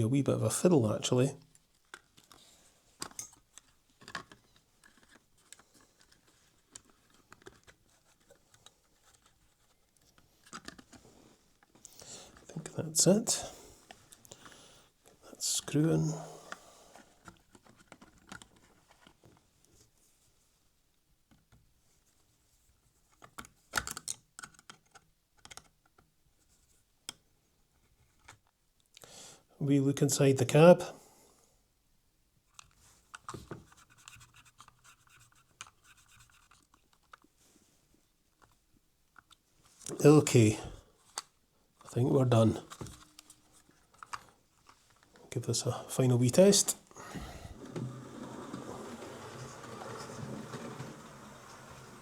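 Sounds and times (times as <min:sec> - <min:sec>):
small clicks and scrapes of handling parts: 0:01.5 - 0:12.6, 0:16.5 - 0:20.0, 0:21.3 - 0:29.0, 0:32.5 - 0:40.0, 0:41.0 - 0:41.9, 0:42.6 - 0:45.4.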